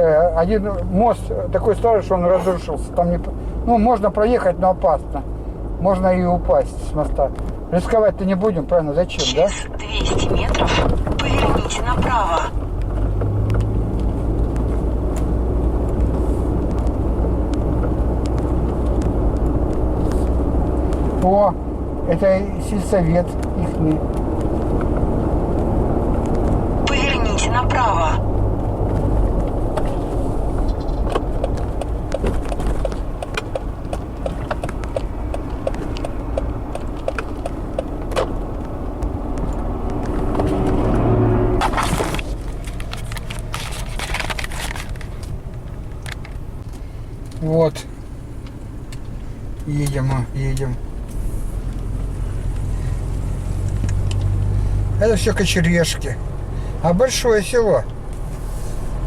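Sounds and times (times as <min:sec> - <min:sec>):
car engine and tyre rumble: 0:00.0 - 0:59.0
turn signal ticking: 0:00.2 - 0:43.5, 0:45.0 - 0:59.0.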